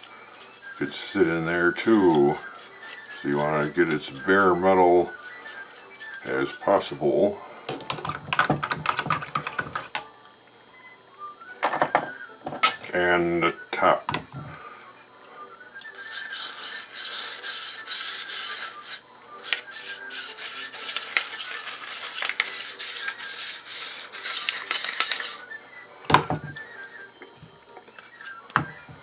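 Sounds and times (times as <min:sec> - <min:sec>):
wire brush scrubbing metal: 0:00.0 - 0:06.9, 0:16.0 - 0:25.5.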